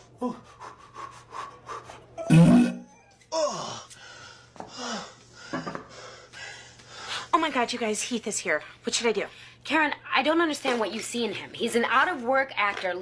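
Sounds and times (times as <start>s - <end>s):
person gasping and panting: 0.2s - 6.6s.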